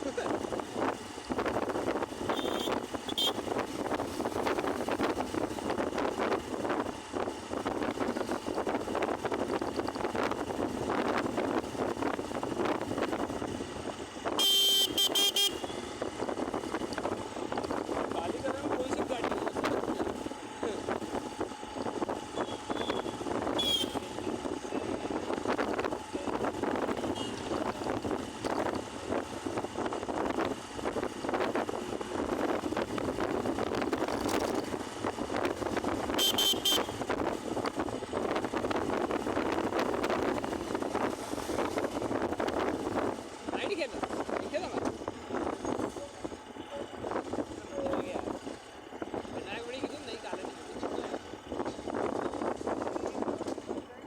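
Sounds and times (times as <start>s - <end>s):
wind rush on microphone: 0.0s - 14.4s, 15.6s - 54.0s
road noise: 0.0s - 54.0s
traffic noise: 0.0s - 54.0s
vehicle horn honking: 2.2s - 3.5s, 14.3s - 15.8s, 22.4s - 24.2s, 27.1s - 27.4s, 36.1s - 37.0s.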